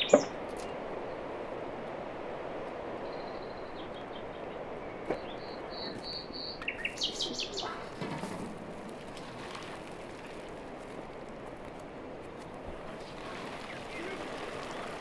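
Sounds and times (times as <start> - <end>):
small birds chirping: 0.0 - 1.3, 3.0 - 8.3, 12.4 - 15.0
steady rushing noise: 6.9 - 15.0.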